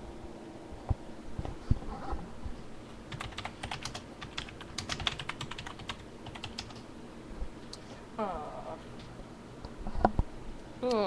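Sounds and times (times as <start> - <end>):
keyboard typing: 3.1 - 6.8.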